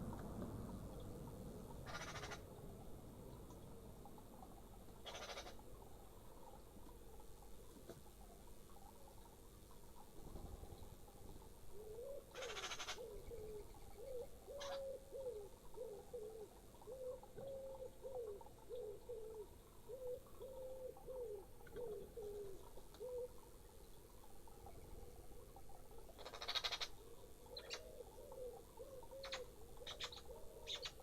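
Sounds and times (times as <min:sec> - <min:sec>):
pigeon cooing: 0:01.8 - 0:02.4, 0:05.0 - 0:05.6, 0:11.7 - 0:23.4, 0:26.2 - 0:31.0.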